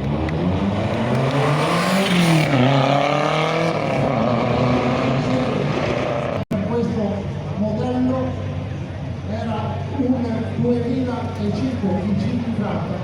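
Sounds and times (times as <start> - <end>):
rally car engine revving: 0.0 - 6.6.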